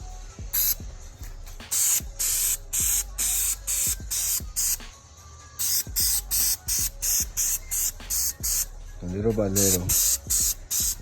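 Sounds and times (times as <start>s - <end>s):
spray can hissing in short bursts: 0.5s - 0.8s, 1.6s - 5.0s, 5.6s - 8.7s, 9.5s - 11.0s.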